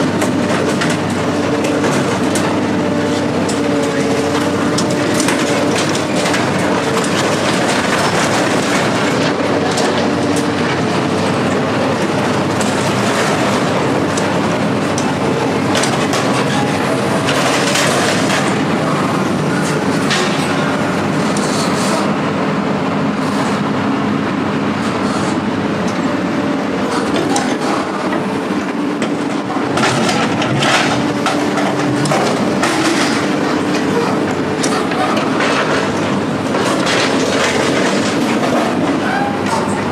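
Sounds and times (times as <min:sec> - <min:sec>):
vehicle running hum: 0:00.0 - 0:39.9
rattling and clatter: 0:26.8 - 0:39.9.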